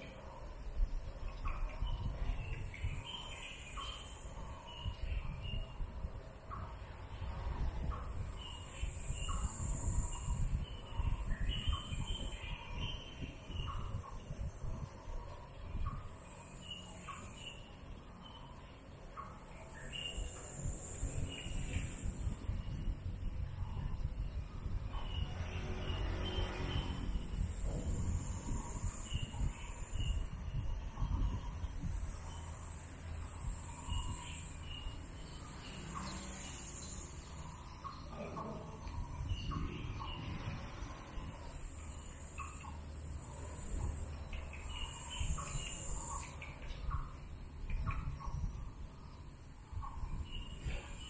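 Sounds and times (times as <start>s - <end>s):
steady high-pitched hiss: 0.0s - 25.3s, 27.0s - 51.0s
birds chirping: 0.0s - 51.0s
low rumbling: 20.6s - 35.8s.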